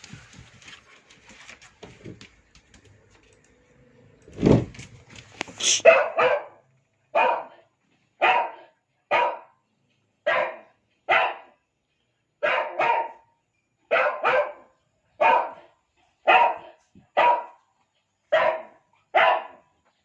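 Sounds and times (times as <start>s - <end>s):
dog barking: 5.6s - 9.6s, 10.2s - 11.6s, 12.4s - 17.7s, 18.3s - 19.8s.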